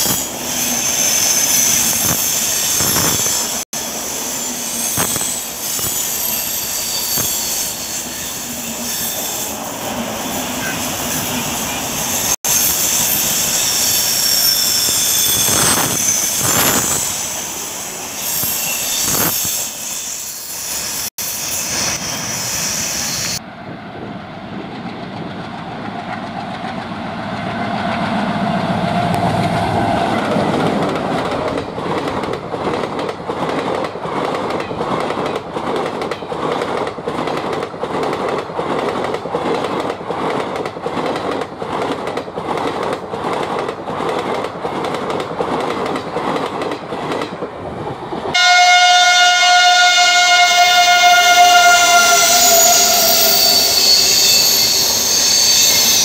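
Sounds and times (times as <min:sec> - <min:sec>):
diesel locomotive: 0:00.0 - 0:56.0
trains rushing past: 0:00.0 - 0:56.0
wheels clicking over rail joints: 0:29.1 - 0:48.4.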